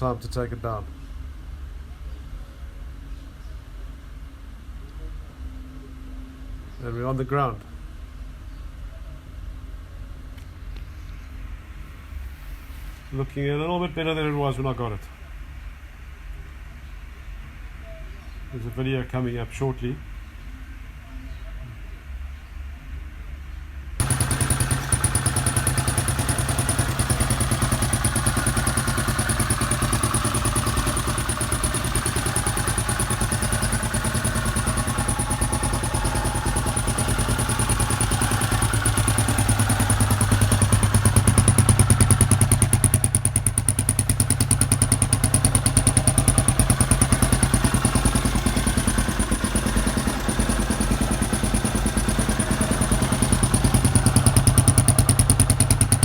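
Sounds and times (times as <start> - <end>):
motorcycle engine running: 24.0 - 56.0.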